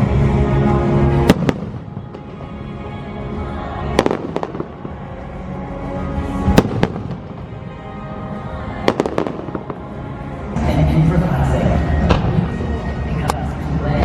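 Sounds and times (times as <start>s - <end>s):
music soundtrack: 0.0s - 14.0s
fireworks bursting: 1.1s - 2.9s, 3.8s - 5.1s, 6.4s - 7.8s, 8.8s - 10.0s.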